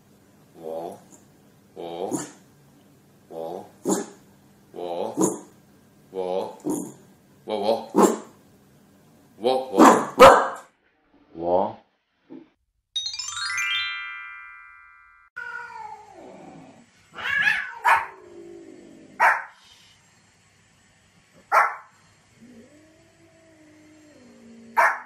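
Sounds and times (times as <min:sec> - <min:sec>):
small dog barking: 0:09.8 - 0:10.7, 0:17.2 - 0:18.2, 0:19.2 - 0:19.6, 0:21.5 - 0:21.9, 0:24.8 - 0:25.0
ringing chime: 0:13.0 - 0:15.4
cats calling: 0:17.1 - 0:18.2.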